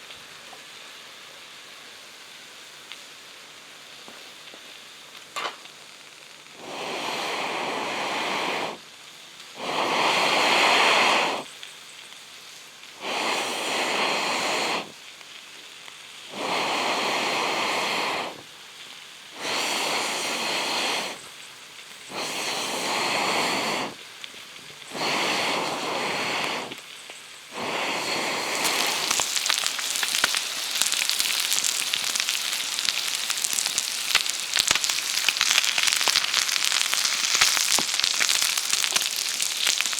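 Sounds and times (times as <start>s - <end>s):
fire crackling and sizzling: 0.0s - 39.9s
blowing on campfire: 6.5s - 11.7s, 12.8s - 15.1s, 16.2s - 18.6s, 19.2s - 39.9s.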